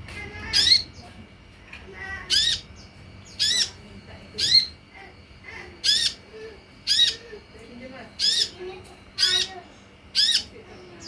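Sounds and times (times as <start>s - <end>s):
sunbird harsh calls: 2.2s - 2.7s, 5.8s - 7.3s, 8.2s - 8.6s, 9.2s - 10.6s.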